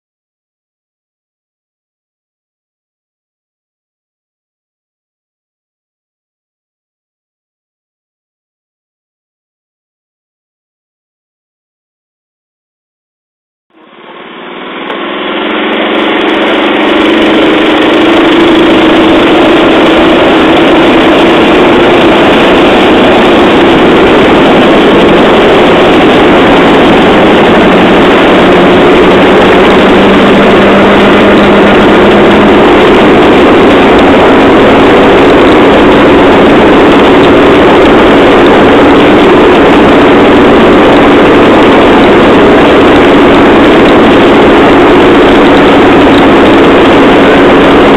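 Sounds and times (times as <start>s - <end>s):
rail trolley engine drone: 13.7s - 47.9s.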